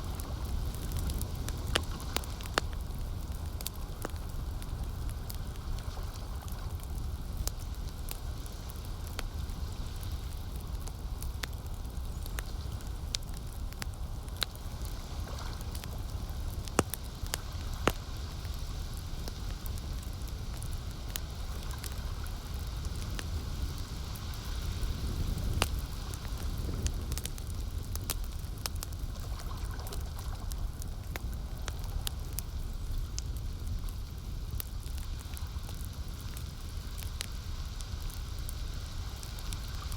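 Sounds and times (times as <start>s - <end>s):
campfire crackling and popping: 0.0s - 39.9s
lake water washing: 29.1s - 31.0s.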